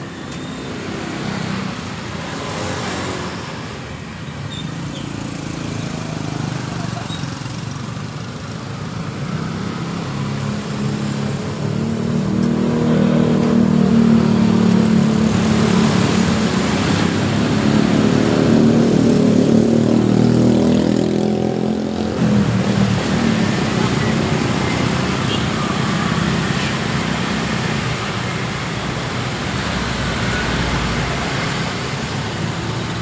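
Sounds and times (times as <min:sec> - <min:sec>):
road noise hiss: 0:22.0 - 0:33.0.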